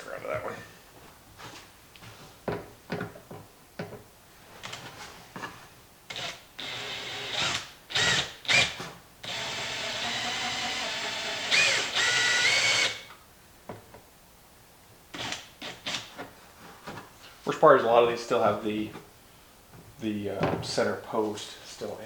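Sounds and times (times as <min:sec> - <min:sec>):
power drill drilling rivets: 0:06.1 - 0:13.1, 0:15.2 - 0:16.1.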